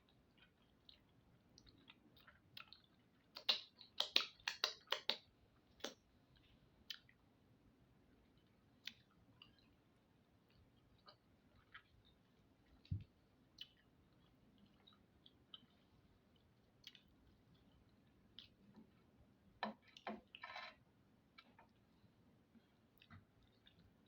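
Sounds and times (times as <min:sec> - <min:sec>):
person chewing: 0:00.3 - 0:05.1, 0:10.5 - 0:11.9, 0:13.6 - 0:18.7.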